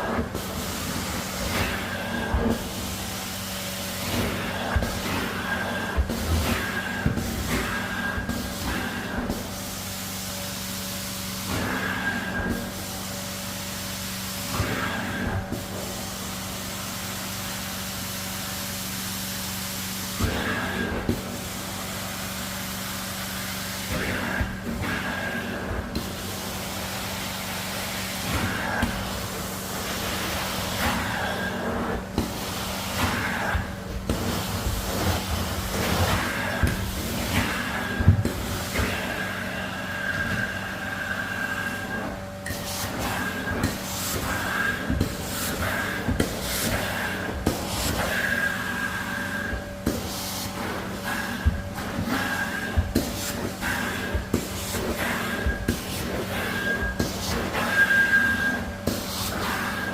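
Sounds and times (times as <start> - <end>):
carpet cleaning machine humming: 0.0 - 59.9
spraying and suction hiss: 20.0 - 59.9
suction wand whistling: 57.6 - 58.7.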